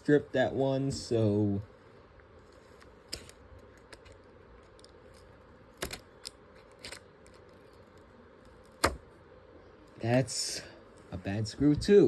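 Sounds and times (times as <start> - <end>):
small parts being handled: 2.3 - 8.8.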